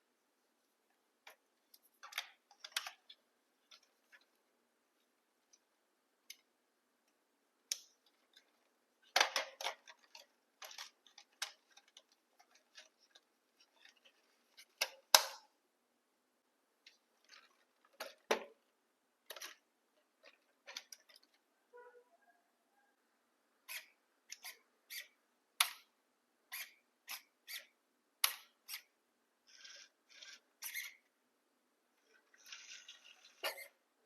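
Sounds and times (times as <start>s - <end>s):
plastic parts clicking and knocking: 1.2s - 4.4s, 5.4s - 15.6s, 16.8s - 21.5s, 23.7s - 28.9s.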